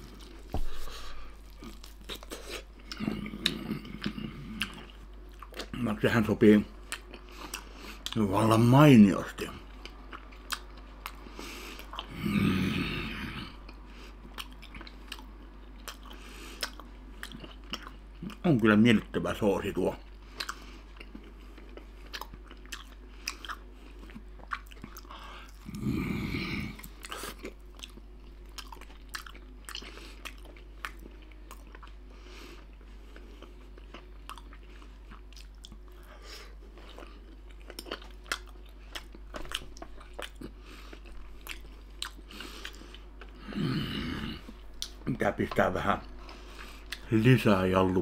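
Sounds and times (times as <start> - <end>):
wet chewing mouth clicks: 13.7 - 18.4, 20.3 - 25.1, 36.8 - 43.4.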